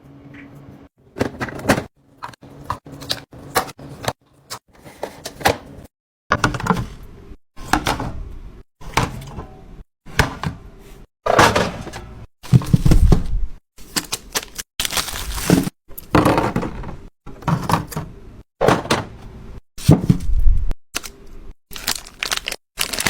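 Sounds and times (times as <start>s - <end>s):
containers and groceries clattering: 1.2s - 5.7s, 11.3s - 13.3s, 14.8s - 19.2s, 21.8s - 23.0s.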